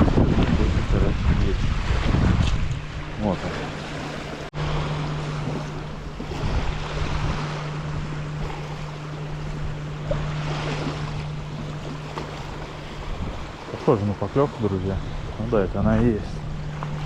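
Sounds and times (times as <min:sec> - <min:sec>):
gusty wind on microphone: 0:00.0 - 0:03.4, 0:04.0 - 0:13.6
steady low hum: 0:00.0 - 0:17.0.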